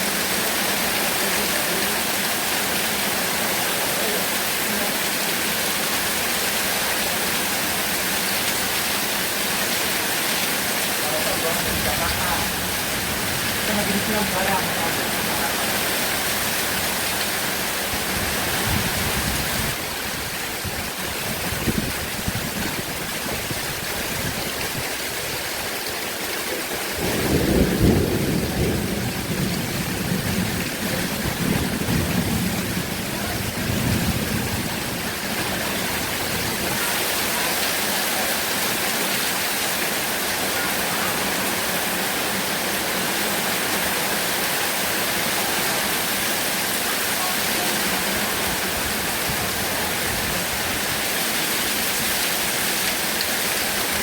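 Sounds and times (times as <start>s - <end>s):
heavy rain hissing: 0.0s - 54.0s
thunder rumbling: 11.4s - 19.8s, 27.0s - 36.8s.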